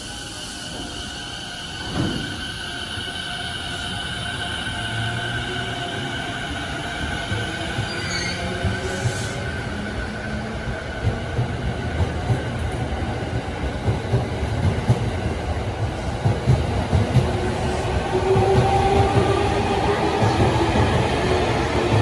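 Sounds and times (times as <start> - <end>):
train wheels rumbling and clacking: 0.7 - 22.0
wheel squeal: 7.9 - 8.6.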